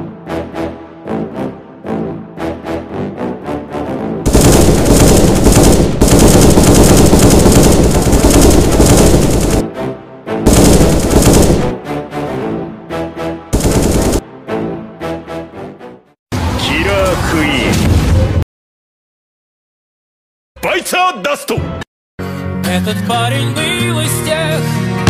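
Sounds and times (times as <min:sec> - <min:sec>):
music: 0:00.0 - 0:04.3, 0:09.6 - 0:18.4, 0:20.6 - 0:25.0
automatic gunfire bursts: 0:04.3 - 0:09.7, 0:10.5 - 0:11.8, 0:13.6 - 0:14.2.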